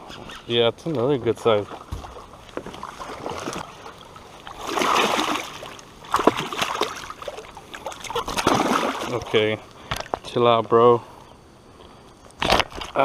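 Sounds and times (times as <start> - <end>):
fish splashing in water: 1.7 - 9.3.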